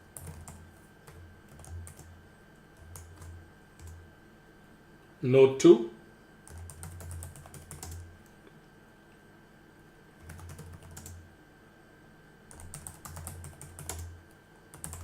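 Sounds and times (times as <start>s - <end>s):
typing on keyboard: 0.0s - 2.1s, 2.8s - 4.0s, 6.5s - 8.1s, 10.2s - 11.2s, 12.5s - 14.1s, 14.7s - 15.0s.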